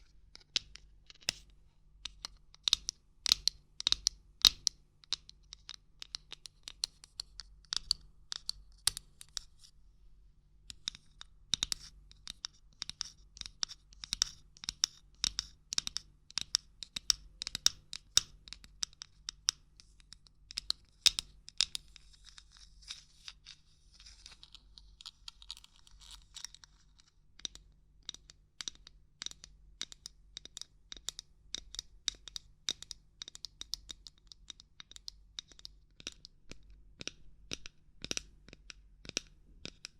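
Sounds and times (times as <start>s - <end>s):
soft scratching: 21.8s - 27.2s.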